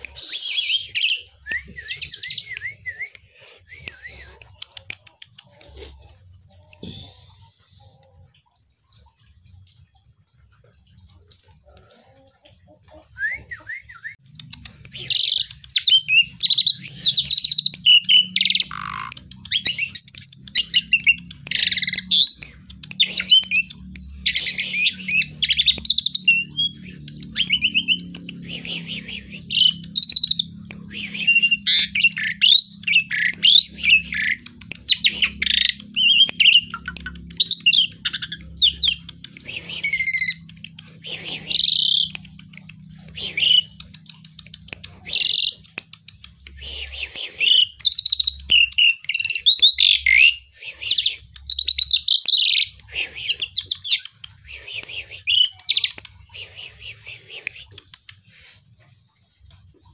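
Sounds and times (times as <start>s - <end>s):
starling singing: 15.0s - 42.5s.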